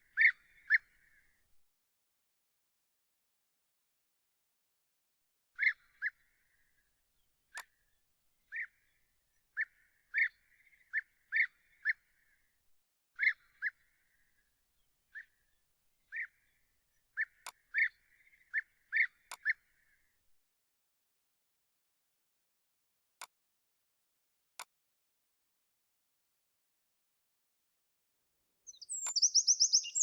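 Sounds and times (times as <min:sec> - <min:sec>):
bird call notes: 0:28.7 - 0:30.0.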